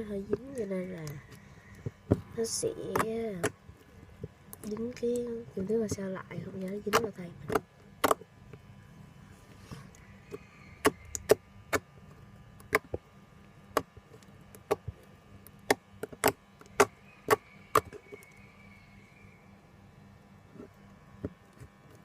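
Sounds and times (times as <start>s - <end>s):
slime clicking and popping: 10.8s - 11.8s, 12.6s - 13.0s.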